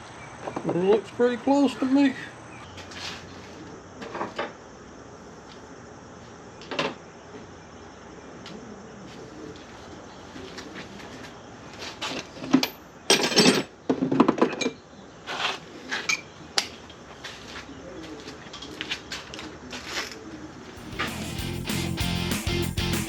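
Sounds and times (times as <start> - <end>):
tools and parts clinking: 12.1 - 14.8
guitar music: 20.8 - 23.0.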